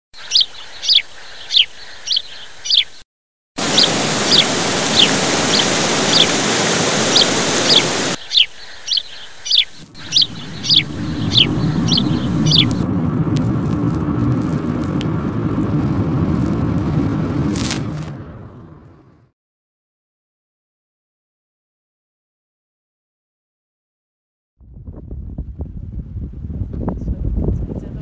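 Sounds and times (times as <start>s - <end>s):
small bird chirping: 0.2s - 3.0s, 3.6s - 12.8s
river and waterfall rushing: 3.6s - 8.2s, 10.0s - 12.8s
low vehicle rumble: 9.8s - 19.3s, 24.6s - 28.0s.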